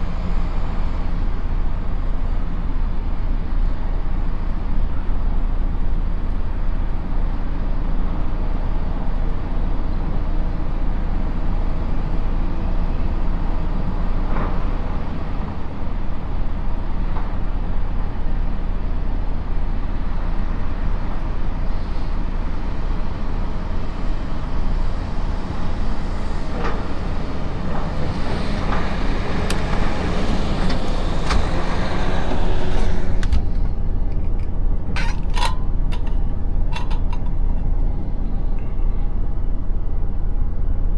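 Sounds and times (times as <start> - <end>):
road noise: 0.0 - 40.9
truck engine rumble: 0.0 - 40.9
sharp knocks and clanks: 27.7 - 37.8.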